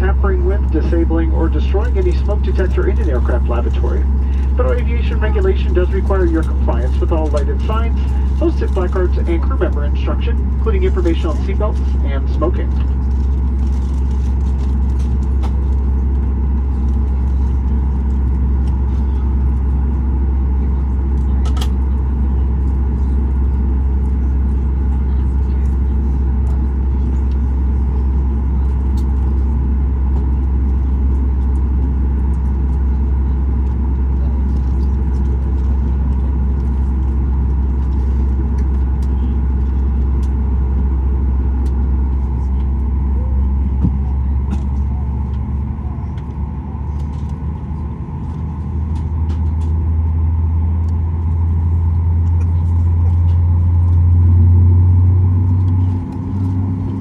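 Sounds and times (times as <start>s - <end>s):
jet engine drone: 0.0s - 21.3s
stronger engine hum: 0.0s - 57.0s.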